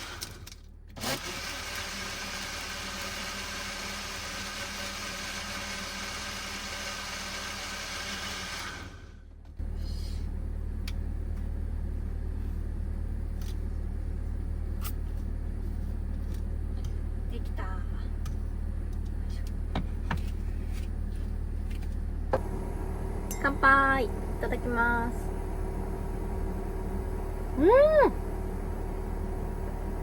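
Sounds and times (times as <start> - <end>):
low steady hum: 9.5 - 30.0.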